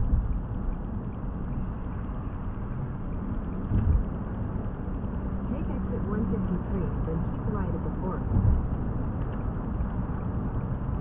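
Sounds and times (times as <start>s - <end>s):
car cabin road rumble: 0.0s - 11.0s
low thump: 3.7s - 4.0s.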